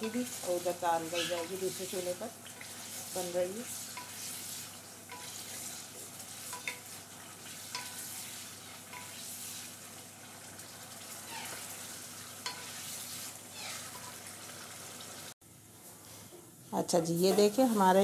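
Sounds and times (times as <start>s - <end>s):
vegetables sizzling in a pan: 0.0s - 18.0s
wooden spatula scraping and tapping pan: 3.7s - 4.4s, 5.1s - 5.8s, 6.4s - 9.3s, 12.4s - 13.2s, 16.3s - 18.0s.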